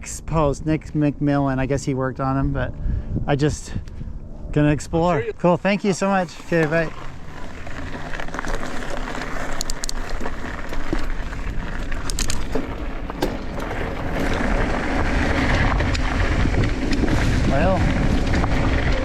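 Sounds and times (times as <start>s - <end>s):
wind rumble on microphone: 0.0s - 5.3s, 6.2s - 19.0s
bike clicks and rattles: 6.3s - 19.0s.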